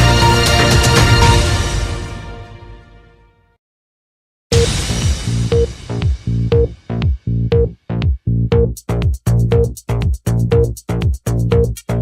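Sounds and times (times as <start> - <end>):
electronic dance music: 4.6 - 12.0
hi-hat ticks: 8.5 - 12.0.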